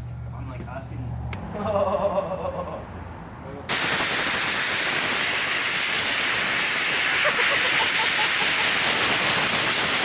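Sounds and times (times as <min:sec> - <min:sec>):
loud steady hissing: 0:03.7 - 0:10.0.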